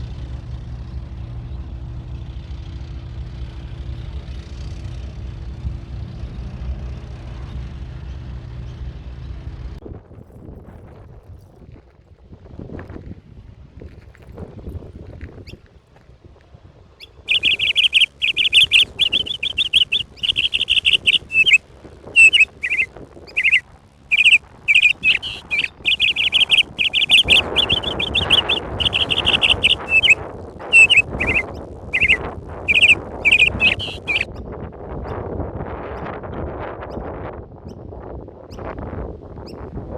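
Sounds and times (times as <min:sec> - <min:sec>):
rushing background noise: 0:11.2 - 0:35.0
bird chirping rapidly: 0:17.0 - 0:34.5.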